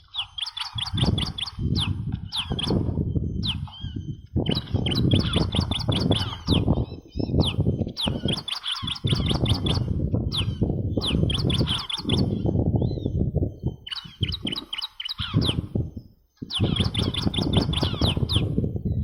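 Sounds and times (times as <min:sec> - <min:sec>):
sharp downward-sweeping bird chirps: 0:00.0 - 0:18.6
rough low rumbling noise: 0:00.9 - 0:08.3, 0:09.0 - 0:14.6.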